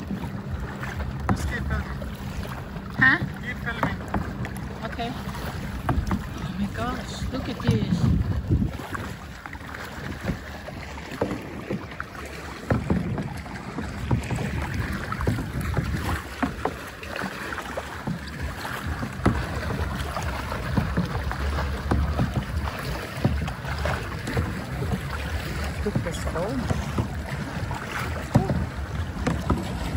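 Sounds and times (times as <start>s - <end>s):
water sloshing and splashing: 0.0s - 29.9s
wind buffeting microphone: 5.6s - 11.9s, 12.8s - 16.8s.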